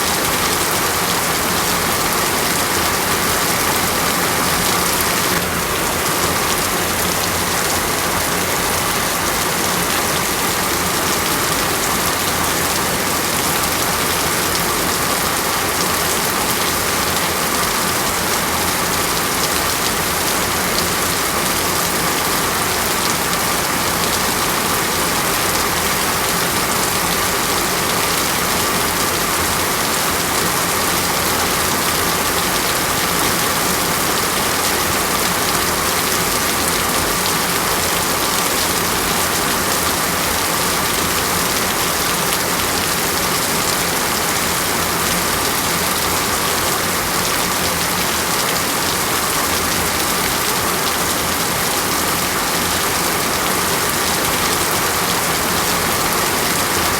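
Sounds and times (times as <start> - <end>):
heavy rain falling: 0.0 - 56.9.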